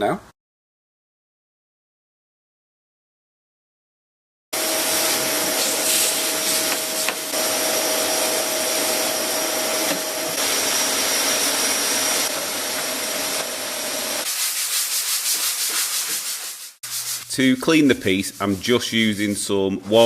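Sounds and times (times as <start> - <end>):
rubbing strokes: 14.2 - 20.0.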